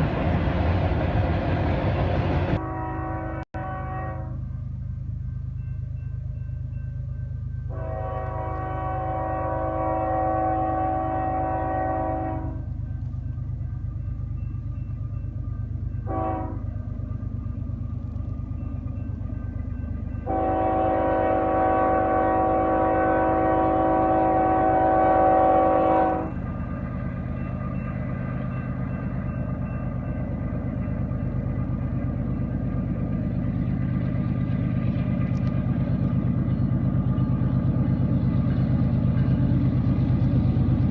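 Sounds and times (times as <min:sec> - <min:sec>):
train rumbling: 0:00.0 - 0:40.9
locomotive air horn blasts: 0:02.6 - 0:04.4, 0:07.7 - 0:12.7, 0:16.1 - 0:16.7, 0:20.2 - 0:26.4.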